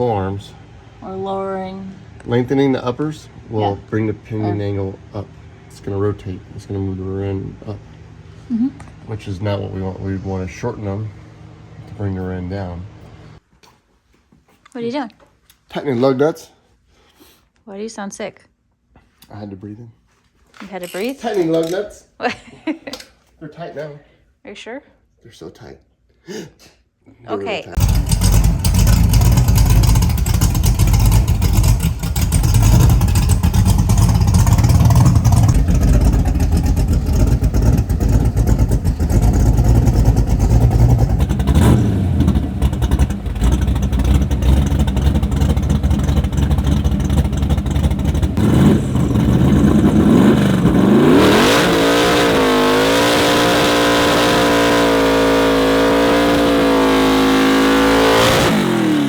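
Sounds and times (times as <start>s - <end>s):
drag car engine revving: 27.8s - 59.0s.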